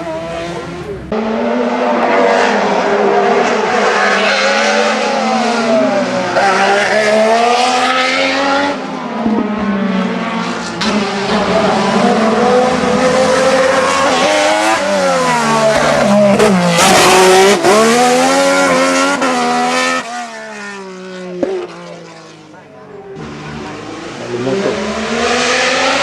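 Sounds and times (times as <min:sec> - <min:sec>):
racing car engine revving: 0:00.0 - 0:26.0.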